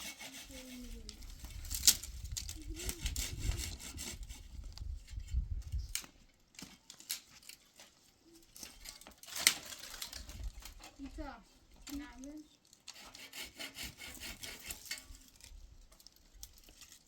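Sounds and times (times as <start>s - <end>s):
hand saw rasping through wood: 0.0s - 4.5s, 12.9s - 15.1s.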